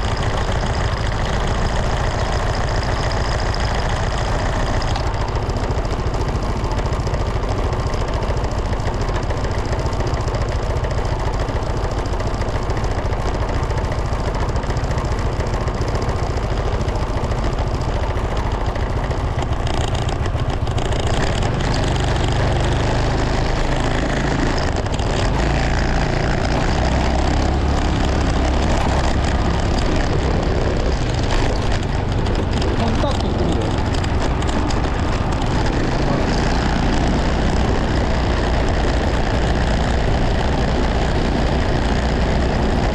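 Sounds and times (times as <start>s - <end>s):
motorcycle engine: 0.0s - 42.9s
wind noise: 26.5s - 38.3s.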